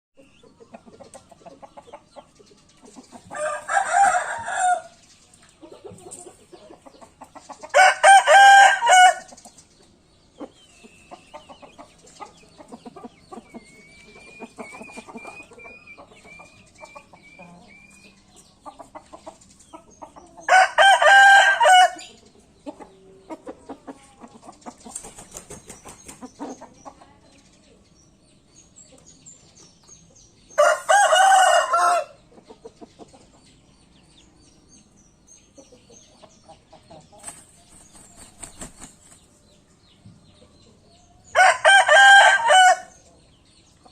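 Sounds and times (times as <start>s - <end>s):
rooster crowing: 3.3s - 4.9s, 7.8s - 9.3s, 20.5s - 22.0s, 30.6s - 32.2s, 41.4s - 42.9s.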